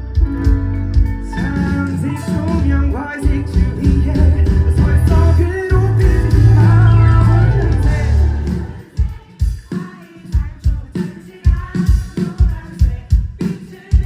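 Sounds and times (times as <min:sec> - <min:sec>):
live pop-rock band: 0:00.0 - 0:14.0
pulsing kick-drum beat: 0:00.2 - 0:14.0
person singing: 0:01.2 - 0:14.0.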